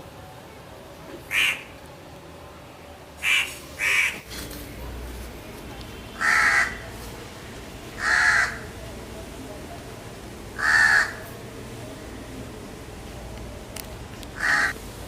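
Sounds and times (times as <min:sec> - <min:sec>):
bird calling: 0:01.3 - 0:01.8, 0:03.2 - 0:04.3, 0:14.4 - 0:14.8.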